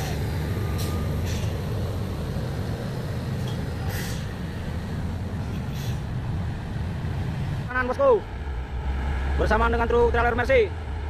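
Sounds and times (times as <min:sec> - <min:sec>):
truck diesel engines labouring: 0:00.0 - 0:11.0
short hisses: 0:05.6 - 0:06.1.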